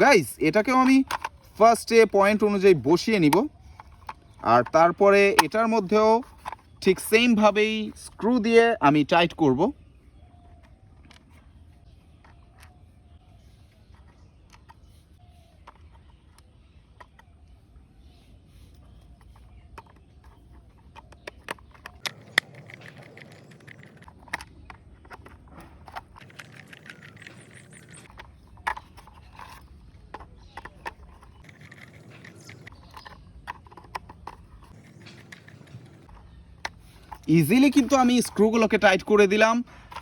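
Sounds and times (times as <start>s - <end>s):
metal scraping on plastic: 0.0s - 8.2s, 18.5s - 40.0s.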